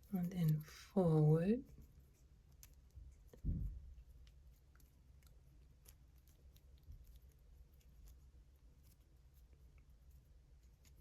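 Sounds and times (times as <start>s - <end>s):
soft low thump: 3.4s - 4.0s.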